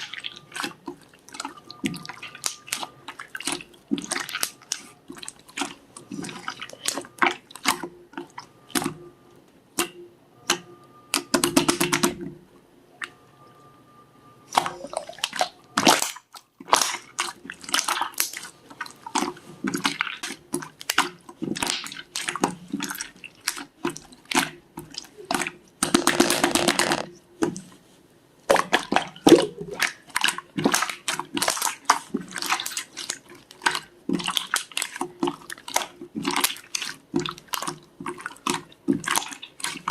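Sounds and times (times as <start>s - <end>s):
slime squished by hand: 25.8s - 27.1s.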